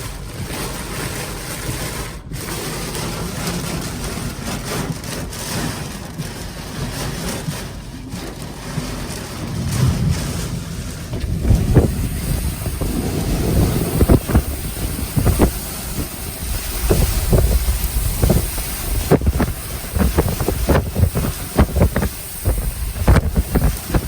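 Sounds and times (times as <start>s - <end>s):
wind gusting on microphone: 9.1s - 24.0s.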